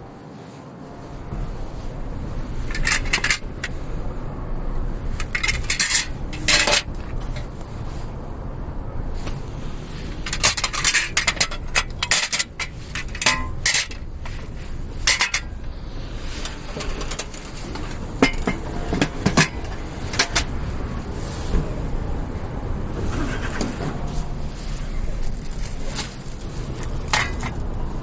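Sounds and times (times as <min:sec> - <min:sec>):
low steady rumble: 0:00.0 - 0:28.0
metal parts clinking: 0:02.6 - 0:03.8, 0:05.1 - 0:07.5, 0:10.1 - 0:15.6.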